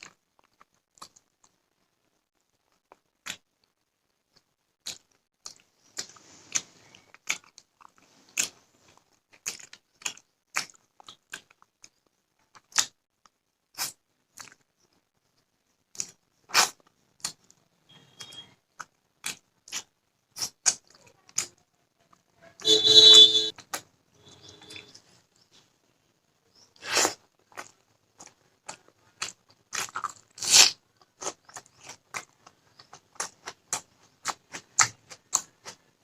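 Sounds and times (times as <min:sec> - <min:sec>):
crisp bites and chewing: 0:04.3 - 0:13.0, 0:15.9 - 0:17.6, 0:26.8 - 0:35.8
mouth clicks: 0:26.7 - 0:35.8.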